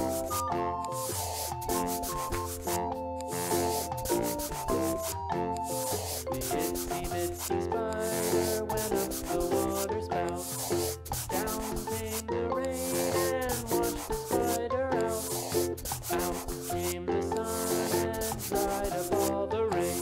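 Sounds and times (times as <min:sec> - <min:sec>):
background music: 0:00.0 - 0:20.0
marker scratching on paper: 0:00.0 - 0:20.0.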